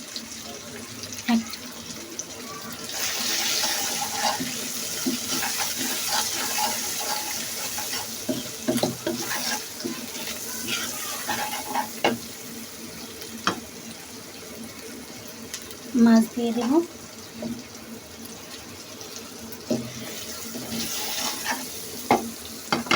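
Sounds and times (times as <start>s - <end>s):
masala sizzling in oil: 0.0s - 22.9s
spatula scraping a pan: 2.9s - 12.4s, 19.7s - 22.9s.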